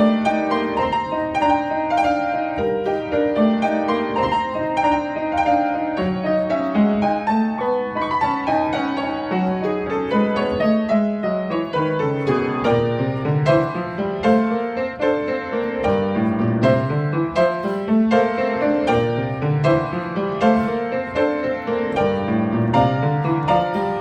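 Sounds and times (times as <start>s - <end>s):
out of tune upright piano: 0.0s - 24.0s.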